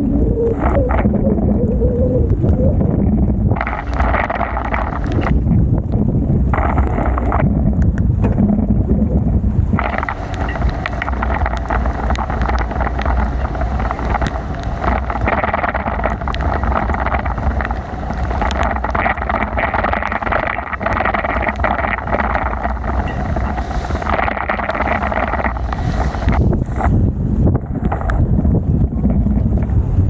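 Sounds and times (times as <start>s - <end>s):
wind buffeting microphone: 0.0s - 30.0s
heavy rain hissing: 3.2s - 5.4s, 9.7s - 27.0s
small ticks: 9.8s - 26.4s.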